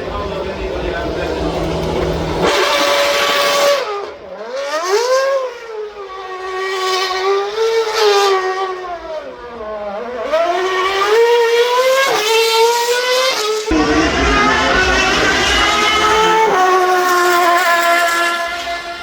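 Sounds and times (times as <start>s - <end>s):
car engine revving hard: 0.0s - 5.5s, 10.0s - 19.0s.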